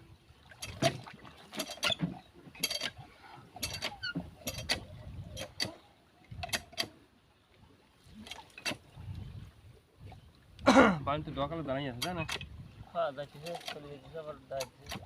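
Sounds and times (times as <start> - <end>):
metallic clanks and creaks: 0.6 - 7.0, 8.2 - 8.8, 11.9 - 12.6, 13.3 - 15.0.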